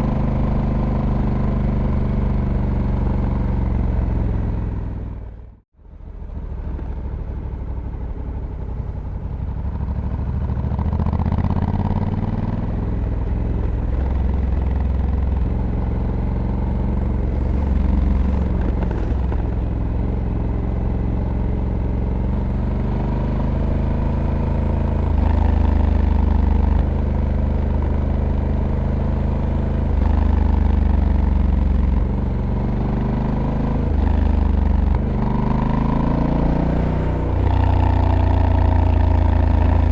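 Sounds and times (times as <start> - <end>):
motorcycle engine shifting gears: 9.8 - 28.0.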